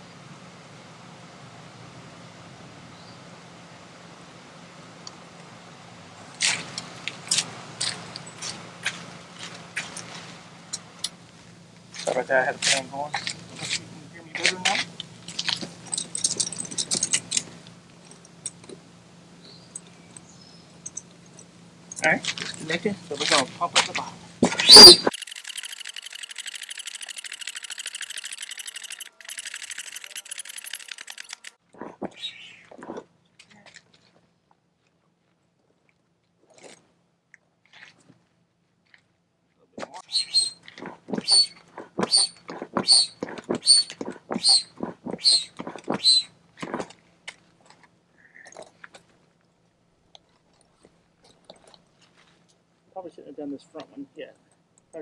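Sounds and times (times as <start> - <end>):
air pump pulsing: 24.7 - 31.6.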